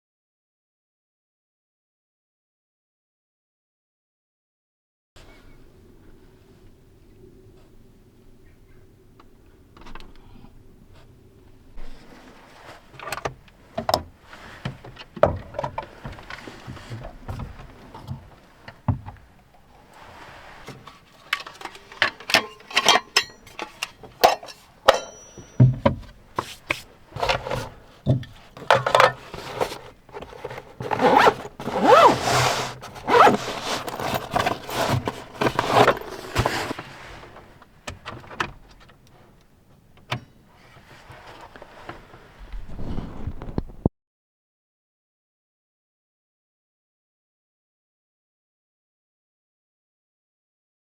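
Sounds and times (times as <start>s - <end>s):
rustling and scraping: 11.8s - 39.4s, 40.4s - 43.9s
gear clicking and clattering: 28.6s - 36.8s.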